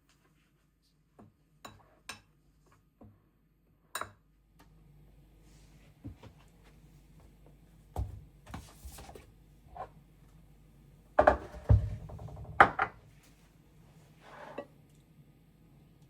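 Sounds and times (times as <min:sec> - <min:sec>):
kitchenware knocking and clinking: 0:11.2 - 0:13.0.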